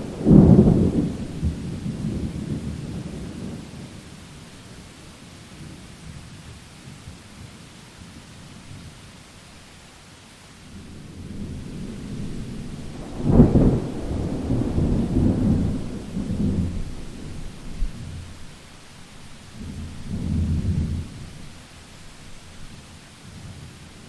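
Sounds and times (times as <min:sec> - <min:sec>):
thunder clap and rumble: 0:00.0 - 0:04.0, 0:11.0 - 0:18.5, 0:19.6 - 0:21.4
steady rain: 0:00.0 - 0:24.0.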